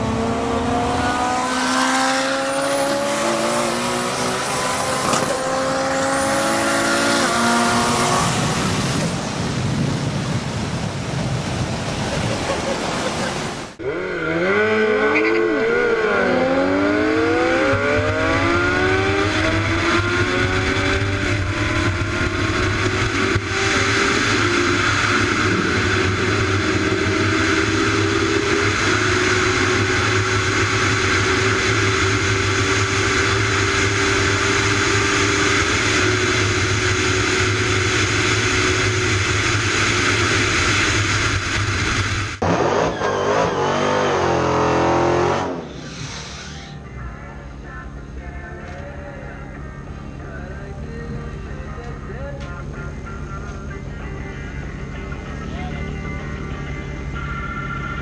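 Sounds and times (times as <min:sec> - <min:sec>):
motorcycle engine accelerating: 0:00.0 - 0:09.1, 0:13.8 - 0:46.8
wind rush: 0:07.3 - 0:13.8.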